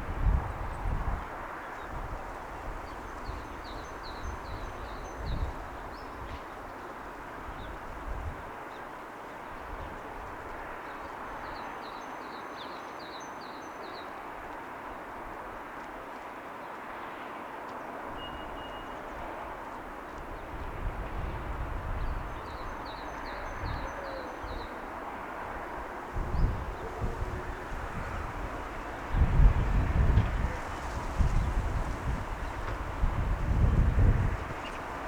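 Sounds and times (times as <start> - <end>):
distant city and ocean ambience: 0.0 - 35.0.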